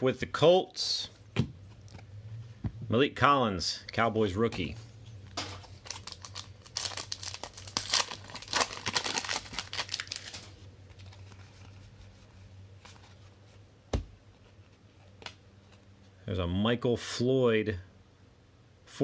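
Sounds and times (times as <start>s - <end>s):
wrapper tearing and crinkling: 5.6s - 11.4s.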